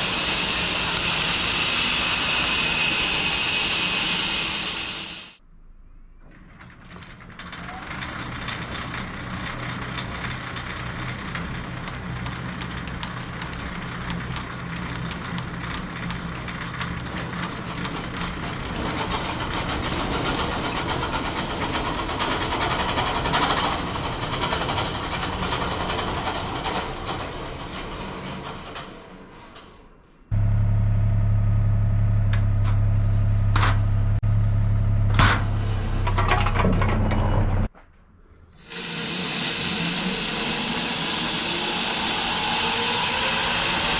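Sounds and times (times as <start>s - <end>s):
engine-driven machinery running: 6.6s - 28.9s, 30.3s - 37.7s
loud steady low engine hum: 30.3s - 36.2s.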